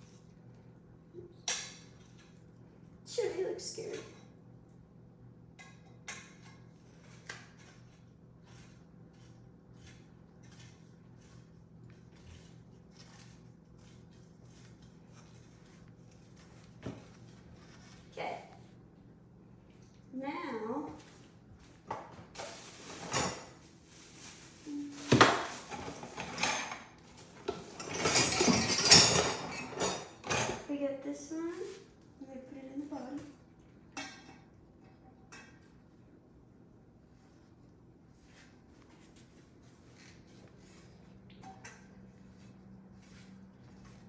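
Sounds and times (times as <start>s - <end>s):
soft rustling scrapes: 22.4s - 25.1s, 31.2s - 32.0s, 36.5s - 44.0s.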